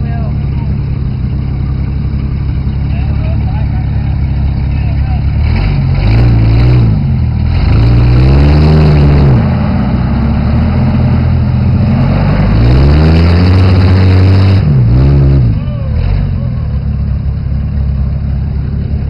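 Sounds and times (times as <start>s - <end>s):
suv engine revving hard: 5.4s - 16.4s.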